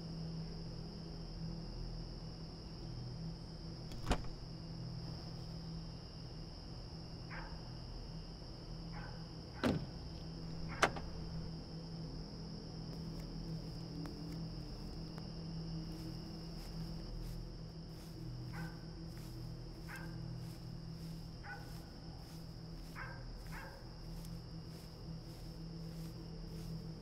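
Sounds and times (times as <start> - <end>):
night insects droning: 0.0 - 27.0
faint dog barking: 7.3 - 7.7, 8.9 - 9.3, 18.5 - 18.8, 19.8 - 20.2, 21.4 - 21.9, 22.9 - 24.0.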